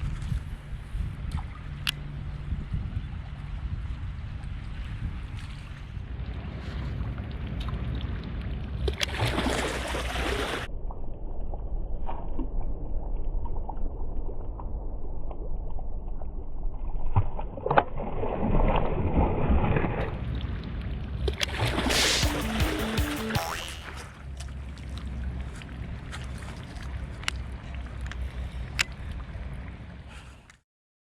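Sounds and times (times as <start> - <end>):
water sloshing and splashing: 4.2 - 10.7, 16.8 - 22.2, 23.8 - 30.1.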